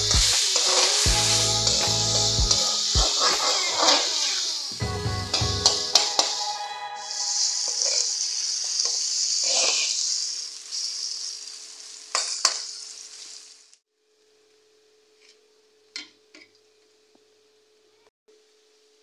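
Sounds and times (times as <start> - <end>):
curry sizzling in hot oil: 0.0 - 13.8
spatula scraping a pan: 0.5 - 4.0.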